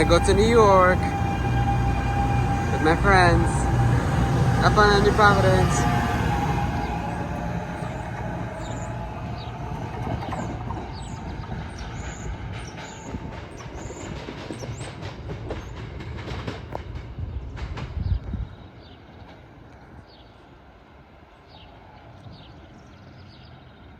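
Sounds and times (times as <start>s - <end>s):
electric train rumbling: 0.0s - 23.9s
train wheels clicking over rail joints: 5.9s - 19.8s.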